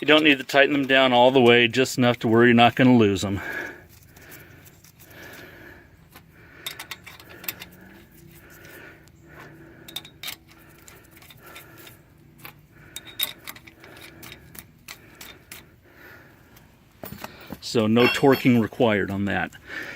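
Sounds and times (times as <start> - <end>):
lug nuts clicking on studs: 6.1 - 8.8, 9.8 - 15.8.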